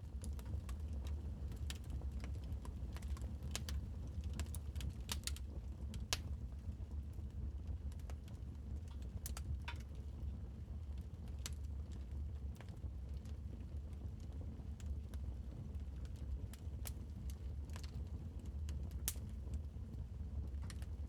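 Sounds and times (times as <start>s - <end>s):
wood fire pops and snaps: 3.0s - 5.4s, 6.0s - 6.4s.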